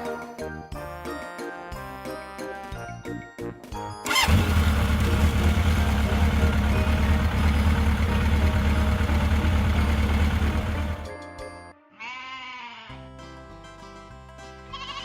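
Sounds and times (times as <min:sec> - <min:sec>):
engine starting and rumbling: 0:04.1 - 0:11.1.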